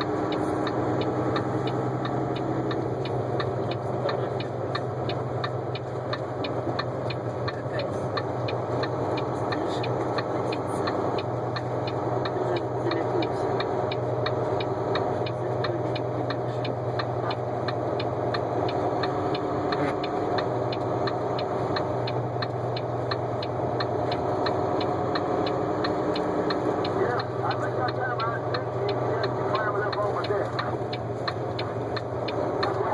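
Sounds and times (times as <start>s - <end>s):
light regular ticking: 0.0s - 32.9s
road noise: 0.0s - 32.9s
vehicle engine drone: 0.0s - 32.9s.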